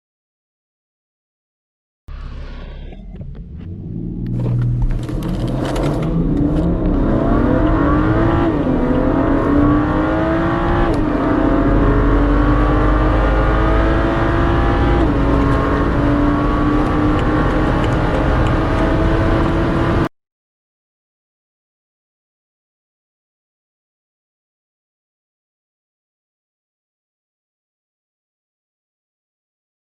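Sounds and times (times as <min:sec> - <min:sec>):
car engine accelerating through gears: 0:02.1 - 0:20.1.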